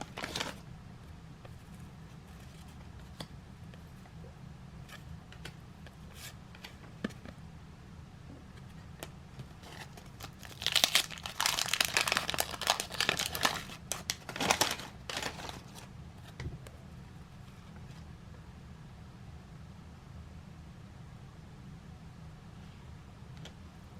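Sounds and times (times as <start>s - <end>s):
wrapper crinkling and tearing: 0.0s - 0.6s, 9.6s - 15.9s.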